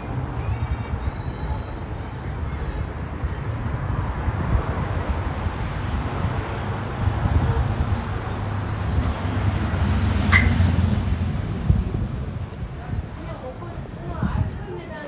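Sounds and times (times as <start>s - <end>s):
street traffic: 0.0s - 15.0s
wind buffeting microphone: 0.0s - 15.0s
short high squeak: 10.3s - 10.8s.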